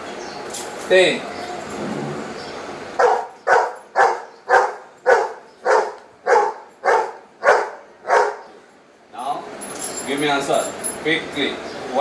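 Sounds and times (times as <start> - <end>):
dog barking: 3.0 - 8.5.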